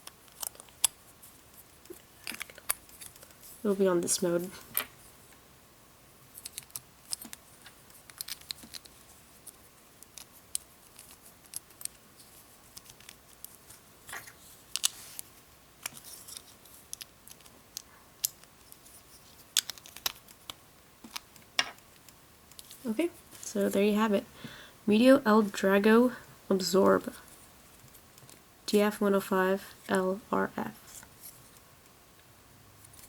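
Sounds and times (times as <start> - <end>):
plastic toy parts clicking: 8.0 - 8.9, 19.6 - 22.6.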